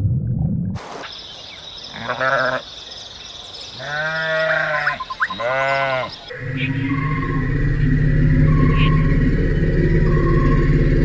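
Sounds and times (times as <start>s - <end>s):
farm animal bleating: 1.9s - 2.7s, 3.7s - 6.3s.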